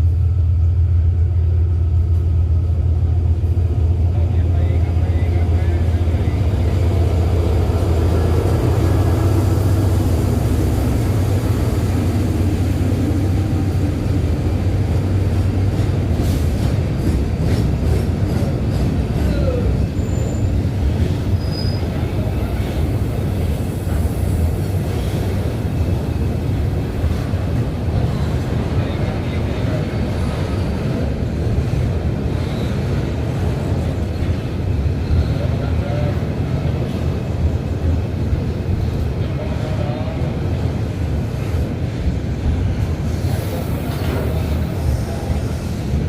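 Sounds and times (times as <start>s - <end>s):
diesel train rumble: 0.0s - 46.0s.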